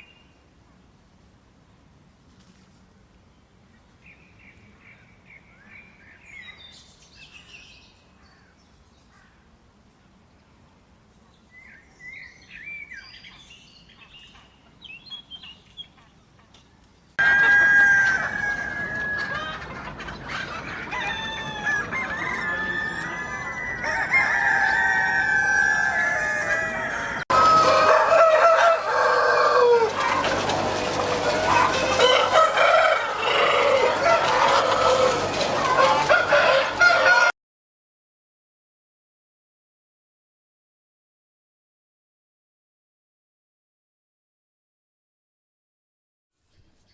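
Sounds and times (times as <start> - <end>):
small birds chirping: 3.3 - 9.5, 10.3 - 17.2
hens clucking: 17.2 - 23.8, 29.6 - 37.3
roosters crowing: 17.2 - 37.3.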